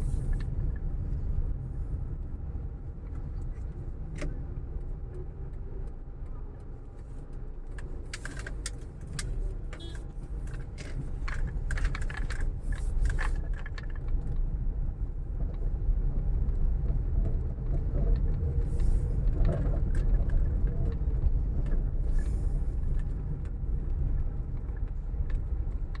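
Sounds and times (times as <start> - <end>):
vehicle engine rumble: 0.0 - 26.0
light clicks and rattles: 3.1 - 14.6.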